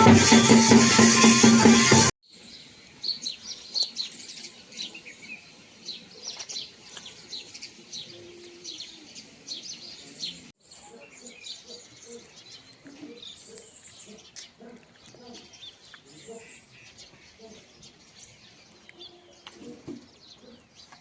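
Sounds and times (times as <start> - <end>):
small birds chirping: 2.3 - 21.0.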